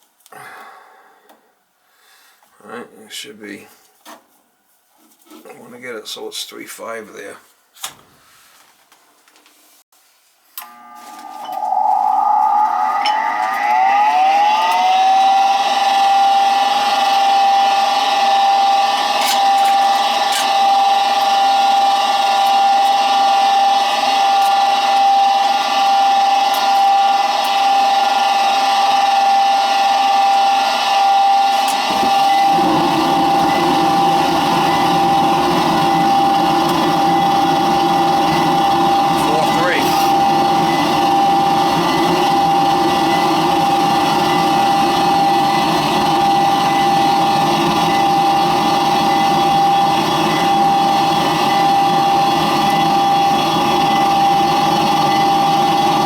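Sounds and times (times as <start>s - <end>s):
furnace inducer motor whine: 10.6s - 56.0s
low rushing sound: 11.5s - 15.2s.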